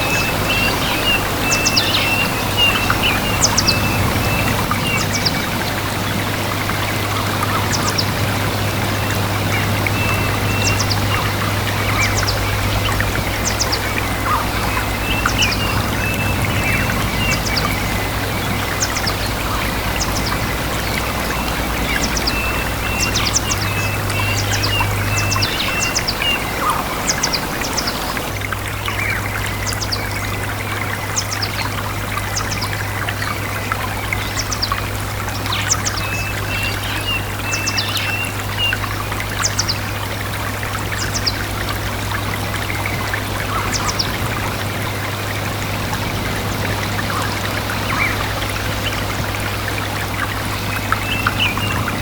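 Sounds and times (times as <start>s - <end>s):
small birds chirping: 0.0s - 30.5s
stream running: 0.0s - 52.0s.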